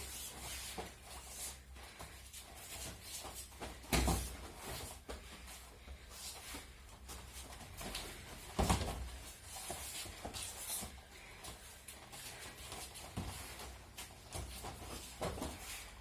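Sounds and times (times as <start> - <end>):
uniforms rustling: 0.0 - 16.0
body thud on mats: 8.4 - 9.1.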